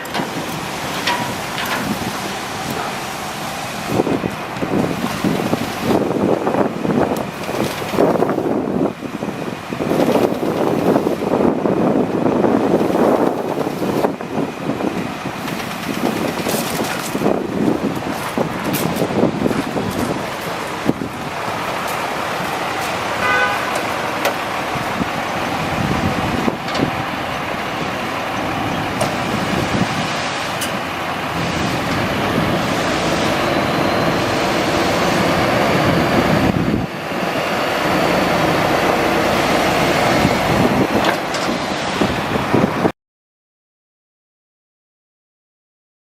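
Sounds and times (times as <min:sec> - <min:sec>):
diesel truck running: 0:00.0 - 0:42.9
road and wind noise: 0:00.0 - 0:42.9
horn toot: 0:23.2 - 0:23.9.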